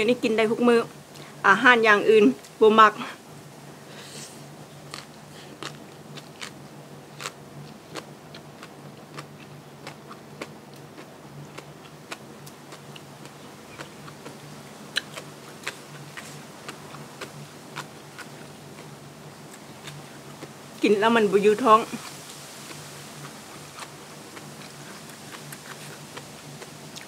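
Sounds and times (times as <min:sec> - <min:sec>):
crisp chewing crunches: 0:04.8 - 0:20.6, 0:21.8 - 0:27.0.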